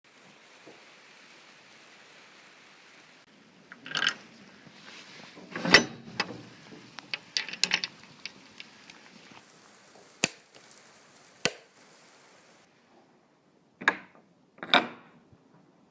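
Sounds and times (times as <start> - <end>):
clicks knocks and rattles: 7.0 - 8.7.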